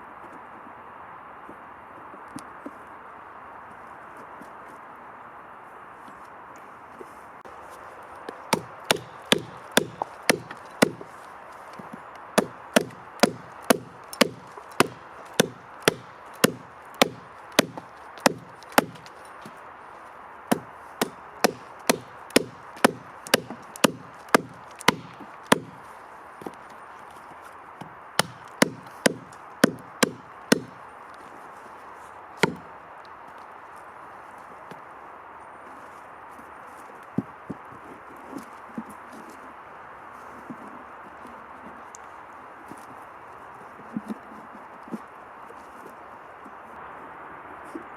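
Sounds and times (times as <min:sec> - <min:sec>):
tool striking wood: 0:08.3 - 0:19.6, 0:20.5 - 0:25.9, 0:28.2 - 0:30.8, 0:32.4 - 0:32.7.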